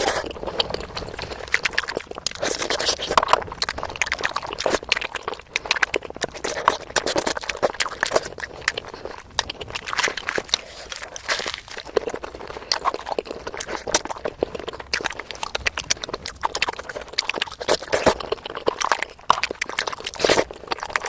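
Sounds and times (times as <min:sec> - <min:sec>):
mouth clicks and smacks: 0:00.0 - 0:21.0
wet chewing: 0:00.0 - 0:21.0.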